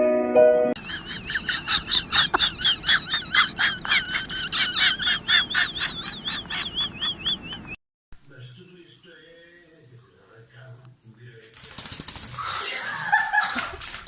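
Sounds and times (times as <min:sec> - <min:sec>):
animal chirping calls: 0:00.8 - 0:07.8.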